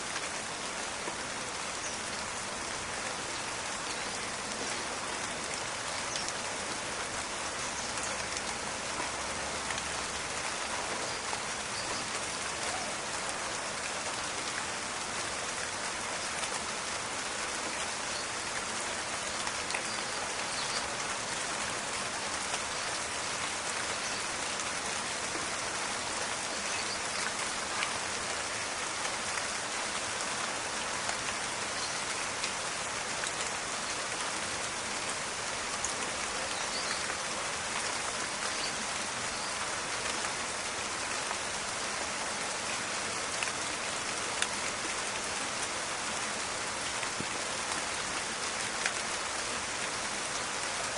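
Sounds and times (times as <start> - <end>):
steady rain in forest: 0.0 - 50.9
raindrop ticks: 44.3 - 44.6.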